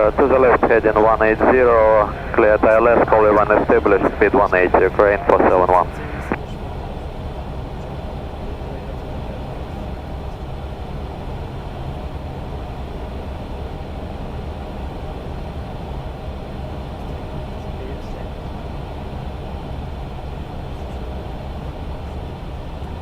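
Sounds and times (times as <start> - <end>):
low hum: 0.0 - 14.5
airliner cockpit rush: 0.0 - 15.4.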